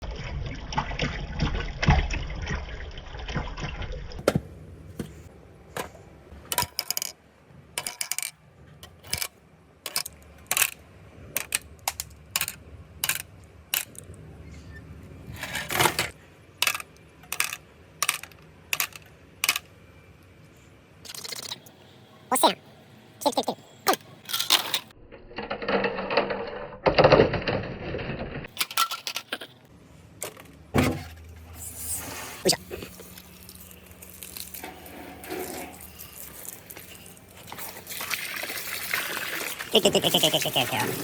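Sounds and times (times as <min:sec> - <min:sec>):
marbles clattering on a marble run: 0:16.6 - 0:19.6.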